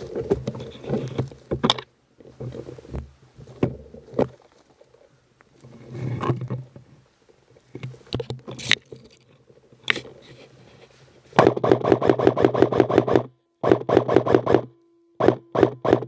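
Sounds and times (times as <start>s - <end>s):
airsoft gun full-auto burst: 11.4s - 16.0s.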